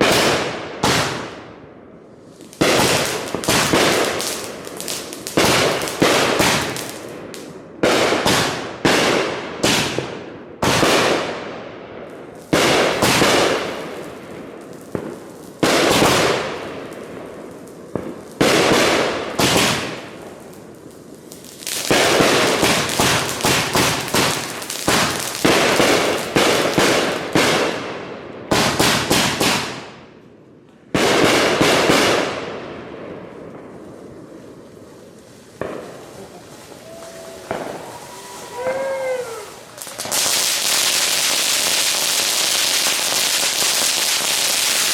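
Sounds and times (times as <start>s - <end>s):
fireworks shots: 0.0s - 1.6s, 2.4s - 30.2s, 30.9s - 44.9s
fireworks crackle: 2.1s - 10.1s, 12.0s - 27.8s, 33.1s - 44.9s.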